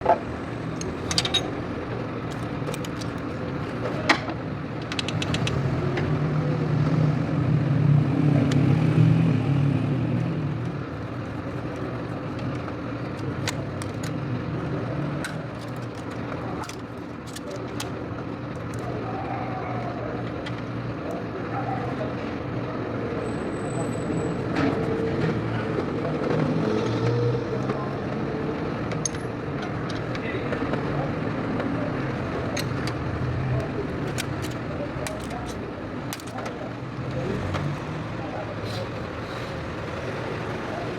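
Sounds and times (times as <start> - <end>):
sharp clicks: 4.8 - 5.6.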